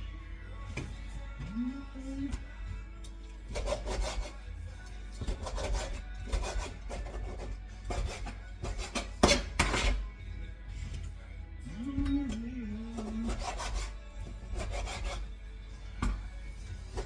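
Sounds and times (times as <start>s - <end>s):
background music: 0.0s - 17.0s
rough scraping strokes: 3.4s - 4.5s, 13.0s - 15.3s.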